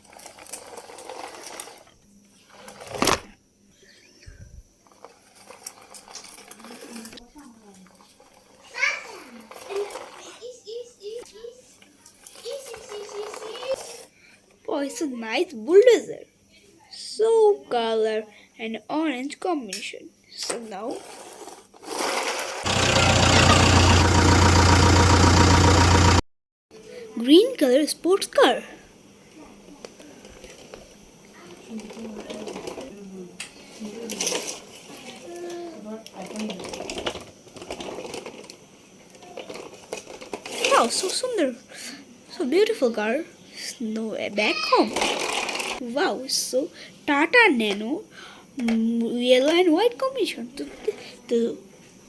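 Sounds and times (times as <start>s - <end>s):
plastic toy clicks and rattles: 12.1s - 14.0s, 36.0s - 41.1s, 44.9s - 45.8s
low knocking engine rumble: 22.7s - 26.2s.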